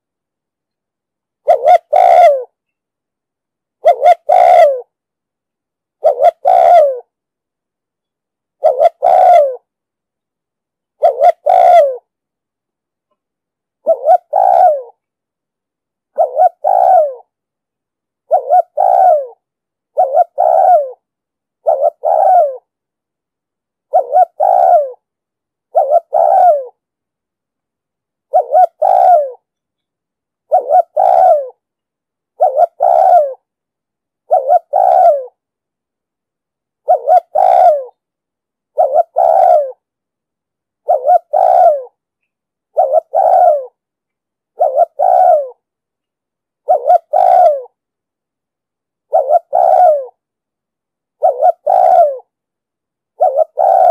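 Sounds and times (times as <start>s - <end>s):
dove cooing: 1.4s - 2.5s, 3.8s - 4.9s, 6.0s - 7.1s, 8.6s - 9.7s, 11.0s - 12.1s, 13.8s - 15.0s, 16.1s - 17.3s, 18.3s - 21.0s, 21.6s - 22.7s, 23.9s - 25.0s, 25.7s - 26.8s, 28.3s - 29.5s, 30.5s - 31.6s, 32.4s - 33.5s, 34.2s - 35.4s, 36.8s - 38.0s, 38.7s - 39.9s, 40.8s - 42.0s, 42.7s - 43.8s, 44.5s - 45.7s, 46.6s - 47.8s, 49.1s - 50.2s, 51.2s - 52.4s, 53.2s - 53.9s.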